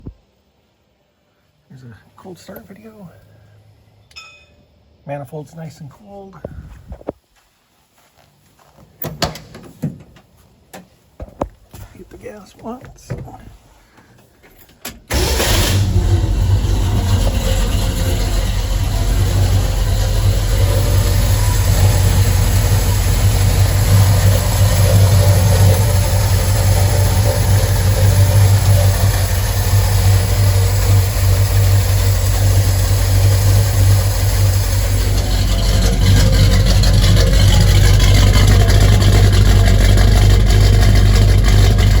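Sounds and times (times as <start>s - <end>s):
pickup engine idling: 15.1s - 42.0s.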